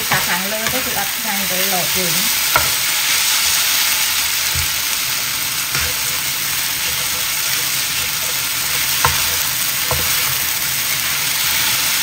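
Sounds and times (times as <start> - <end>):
food sizzling in a frying pan: 0.0 - 12.0
spatula knocking against pan: 5.7 - 10.4.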